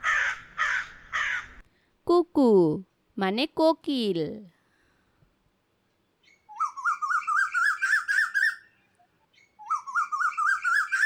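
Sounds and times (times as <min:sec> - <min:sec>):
cuckoo calling: 0:06.3 - 0:11.0.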